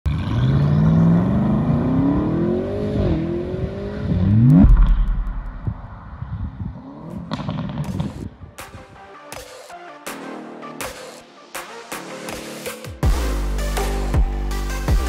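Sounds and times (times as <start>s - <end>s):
car engine revving: 0.1s - 8.4s
deep boom: 4.4s - 6.6s.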